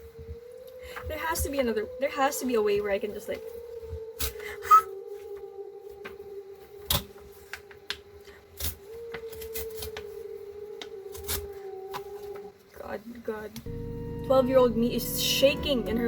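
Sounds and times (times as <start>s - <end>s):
scanner motor hum: 13.7s - 16.0s.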